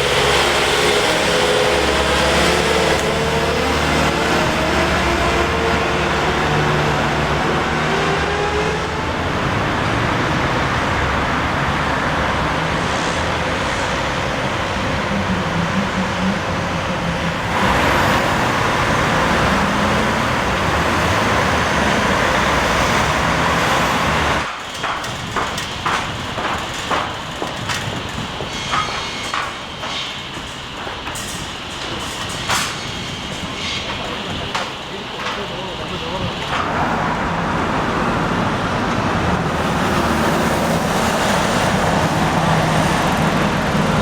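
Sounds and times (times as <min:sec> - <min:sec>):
heavy diesel engine running: 0:00.0 - 0:44.0
steady traffic noise: 0:00.0 - 0:44.0
irregular clicks and knocks: 0:24.4 - 0:35.7.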